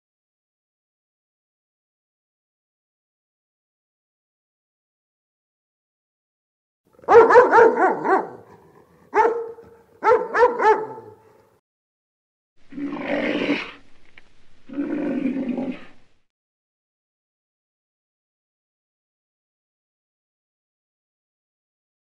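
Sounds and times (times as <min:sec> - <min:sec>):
dog barking: 0:07.0 - 0:11.4.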